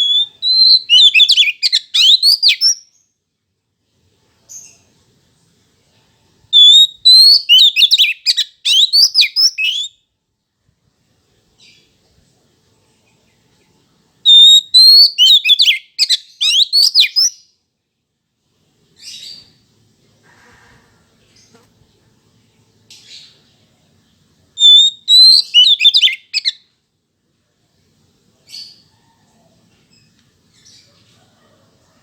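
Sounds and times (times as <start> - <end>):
magpie-robin singing: 0.0 - 3.0, 6.6 - 10.0, 14.3 - 17.5, 24.6 - 26.6.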